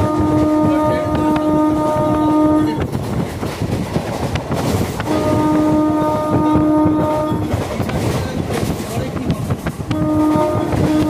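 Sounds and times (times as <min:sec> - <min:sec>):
train horn blasts: 0:00.0 - 0:02.9, 0:05.0 - 0:07.7, 0:09.9 - 0:11.0
train wheels clattering on rails: 0:00.0 - 0:11.0.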